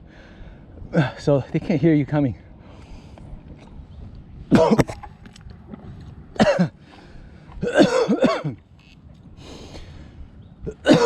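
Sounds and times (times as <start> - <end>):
man coughing: 4.5 - 5.0, 6.4 - 6.8, 7.6 - 8.6, 10.7 - 11.0.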